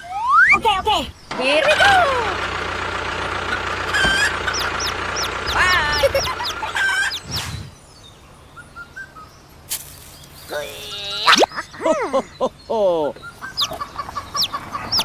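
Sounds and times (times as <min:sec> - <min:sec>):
birds chirping: 0:00.0 - 0:15.0
small motor humming: 0:01.6 - 0:07.6.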